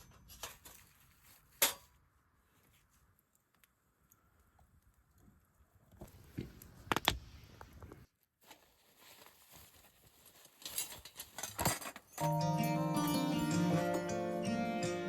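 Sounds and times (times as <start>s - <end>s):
plucked-string music: 12.2s - 15.0s.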